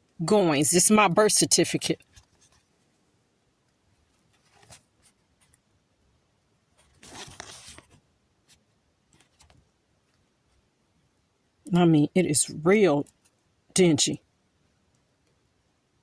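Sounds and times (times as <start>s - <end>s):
paper rustling: 2.0s - 2.8s, 4.1s - 5.6s, 6.8s - 10.2s.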